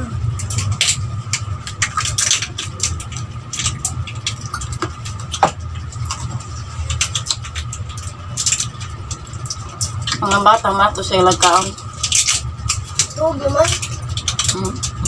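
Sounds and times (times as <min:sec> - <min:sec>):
steady low hum: 0:00.0 - 0:15.0
chewing and lip-smacking: 0:00.3 - 0:10.4.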